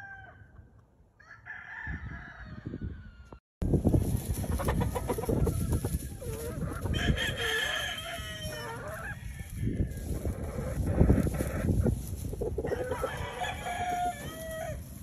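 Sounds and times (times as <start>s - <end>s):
roosters crowing: 0.0s - 3.4s, 4.5s - 15.0s
chickens clucking: 4.3s - 15.0s.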